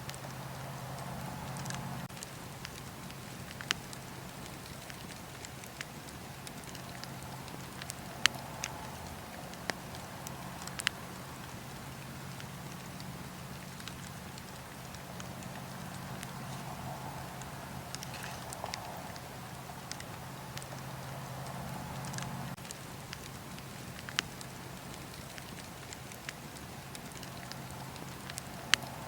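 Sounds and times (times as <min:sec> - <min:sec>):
wood fire crackling and popping: 0:00.0 - 0:29.0.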